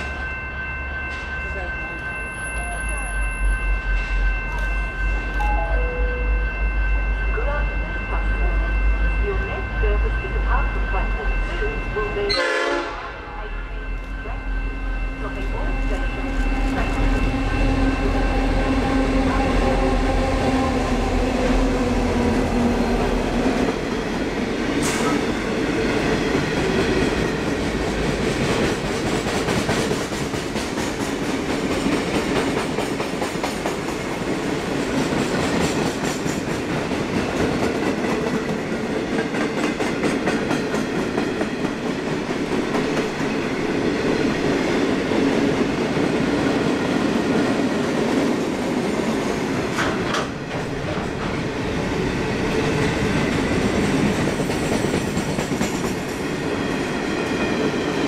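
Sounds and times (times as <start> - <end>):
diesel locomotive engine drone: 0.0 - 32.8.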